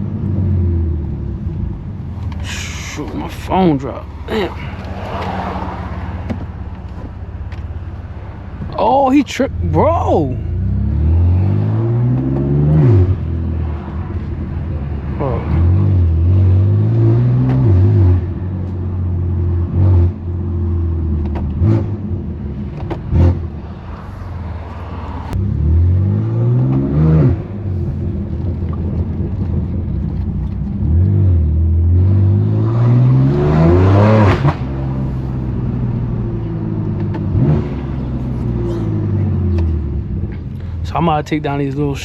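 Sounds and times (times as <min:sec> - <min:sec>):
loud car engine accelerating: 0:09.6 - 0:24.0, 0:24.9 - 0:29.9, 0:30.7 - 0:40.5.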